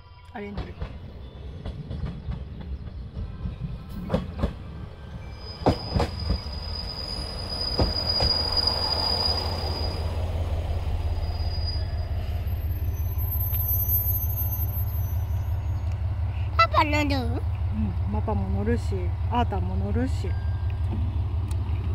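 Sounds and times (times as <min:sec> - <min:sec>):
low train machinery hum: 0:00.0 - 0:21.9
train wheels clicking over rail joints: 0:00.5 - 0:04.9, 0:05.6 - 0:06.7, 0:07.7 - 0:08.7
high brake squeal: 0:05.0 - 0:16.0.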